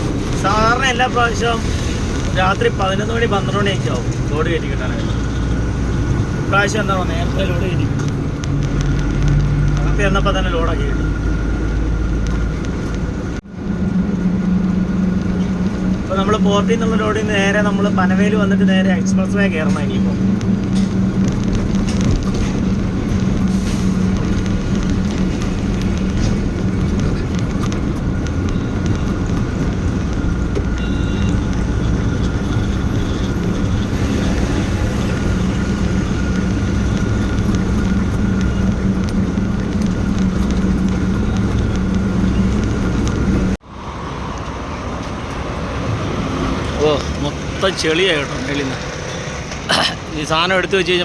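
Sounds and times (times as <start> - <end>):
diesel truck engine running: 0.0 - 51.0
road noise: 0.0 - 51.0.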